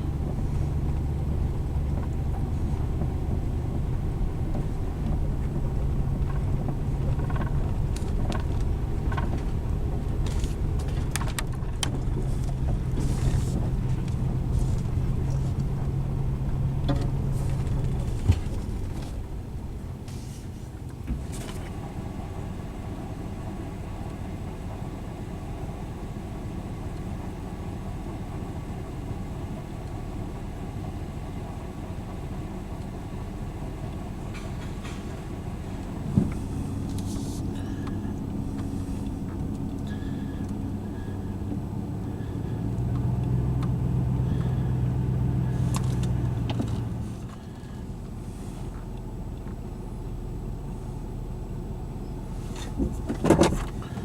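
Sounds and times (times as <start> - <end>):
road noise and engine rumble: 0.0 - 54.0.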